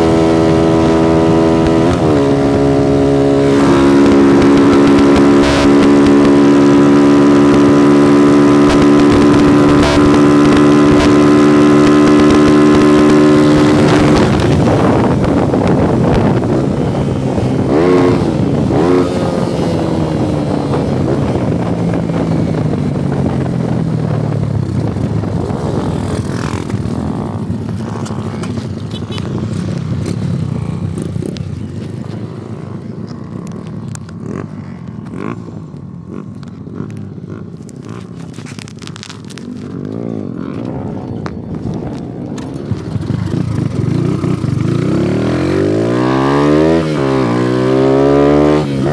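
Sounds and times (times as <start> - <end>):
motorcycle engine revving high: 0.0 - 35.4, 39.6 - 48.9.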